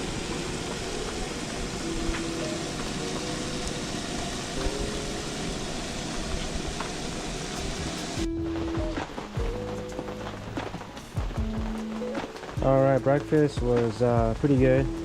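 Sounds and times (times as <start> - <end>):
heavy rain: 0.0 - 15.0
faint background music: 7.5 - 15.0.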